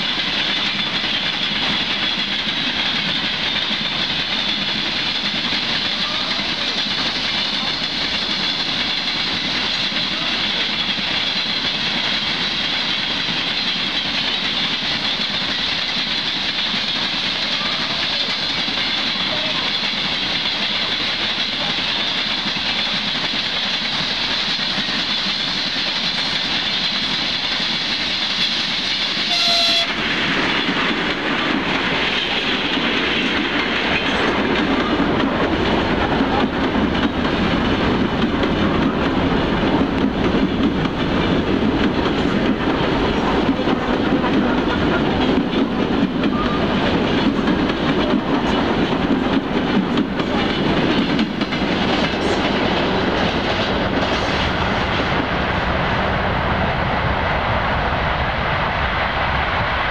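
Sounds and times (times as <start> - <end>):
electric train running past: 0.0 - 59.9
freight wagons rolling clickety-clack: 0.1 - 28.1, 30.4 - 54.5
train horn blast: 29.2 - 30.0.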